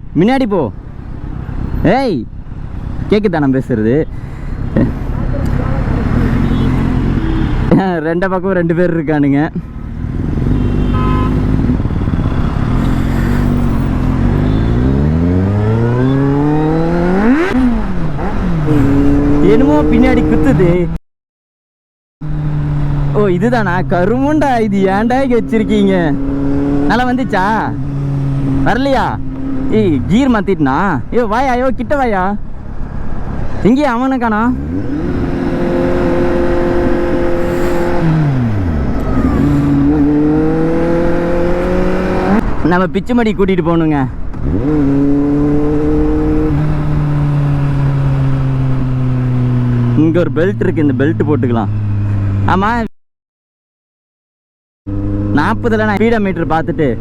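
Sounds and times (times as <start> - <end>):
wind and road noise: 0.0 - 21.0, 22.2 - 52.9, 54.9 - 57.0
motorcycle engine accelerating: 4.7 - 7.7, 9.7 - 20.8, 22.2 - 30.2, 34.4 - 42.6, 44.4 - 52.6, 54.9 - 56.0
motorcycle engine running: 9.7 - 20.3.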